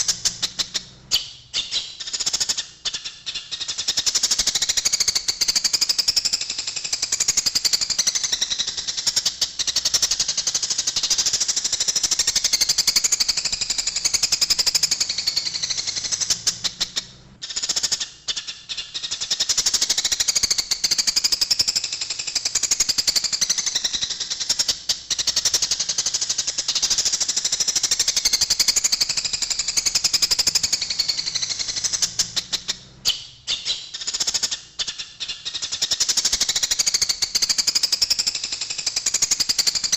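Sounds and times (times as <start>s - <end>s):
sparrows chattering chirps: 24.5s - 38.3s.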